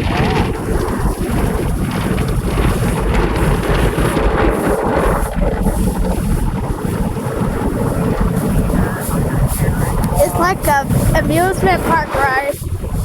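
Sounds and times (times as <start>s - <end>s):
car wash water and machinery: 0.0s - 13.0s.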